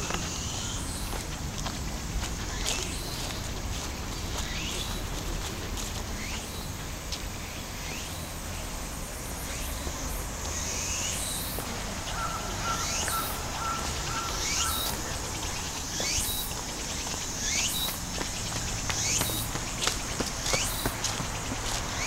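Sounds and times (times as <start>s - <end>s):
steady piping bird notes: 10.5s - 22.0s
bird calling with rising note: 11.4s - 16.5s.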